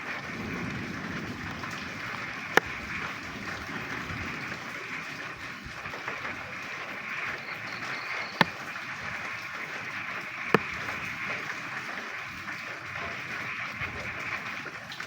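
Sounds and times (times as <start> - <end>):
chorus of frogs calling: 0.0 - 14.9
rain falling: 0.0 - 15.0.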